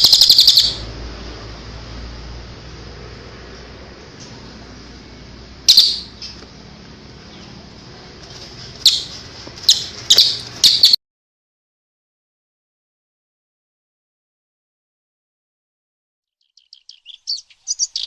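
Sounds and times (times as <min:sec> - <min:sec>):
bird calls: 0:00.0 - 0:00.9, 0:05.7 - 0:06.4, 0:08.8 - 0:11.0, 0:16.4 - 0:18.0.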